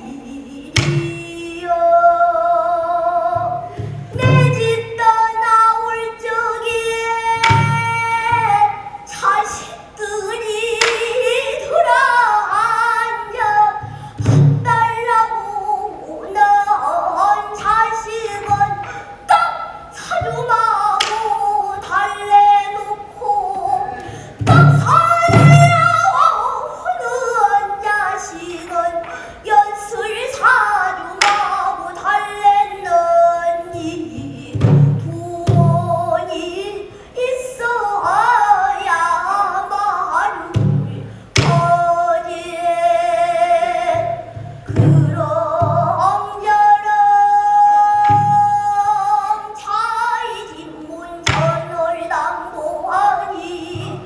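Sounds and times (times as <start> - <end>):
child singing: 0.0 - 13.9, 14.6 - 54.0
barrel drum thuds: 23.7 - 26.0.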